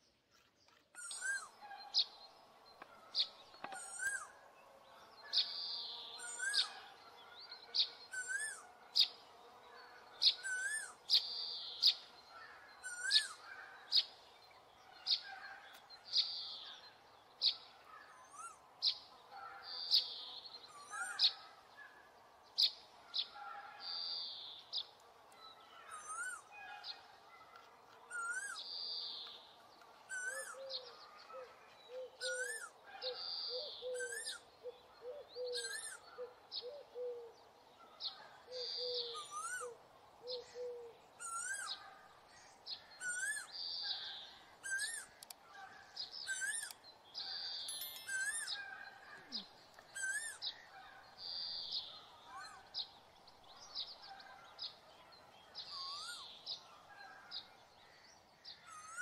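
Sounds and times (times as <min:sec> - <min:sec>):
birds chirping and warbling: 0:00.0 - 0:59.0.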